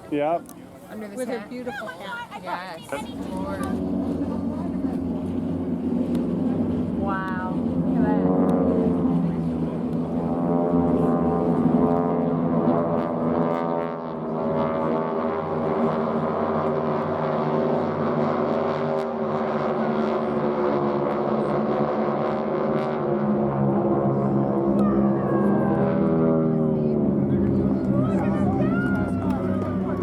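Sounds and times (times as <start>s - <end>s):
aircraft engines droning: 0.0s - 30.0s.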